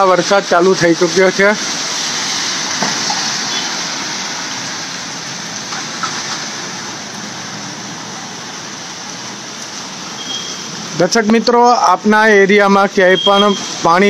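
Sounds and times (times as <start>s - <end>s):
heavy rain on flooded road: 0.0s - 14.0s.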